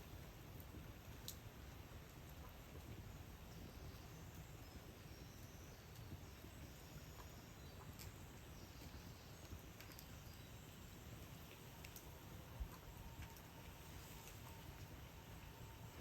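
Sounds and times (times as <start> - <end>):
low steady rumble: 0.0 - 16.0
faint sharp clicks: 0.6 - 1.4, 11.5 - 12.1.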